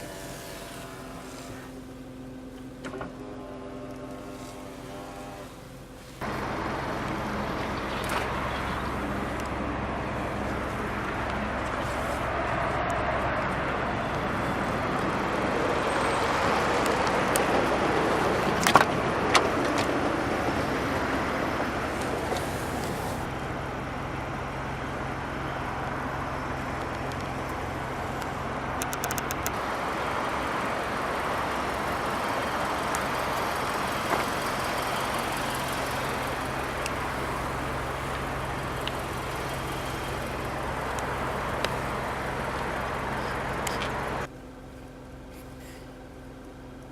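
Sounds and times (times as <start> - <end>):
low hum: 0.0 - 46.9
road traffic passing: 0.0 - 46.9
sharp clicks: 28.2 - 29.6.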